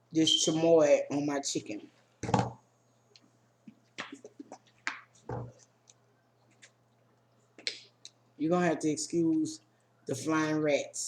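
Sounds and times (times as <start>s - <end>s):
objects handled on a table: 2.2s - 2.6s, 3.7s - 6.8s.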